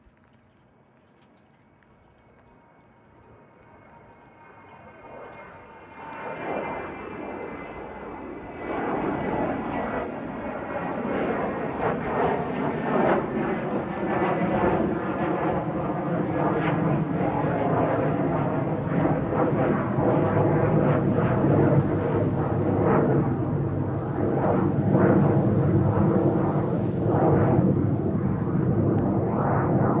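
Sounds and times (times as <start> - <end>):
jet engines roaring at takeoff: 2.6 - 30.0
high jet whine: 6.5 - 30.0.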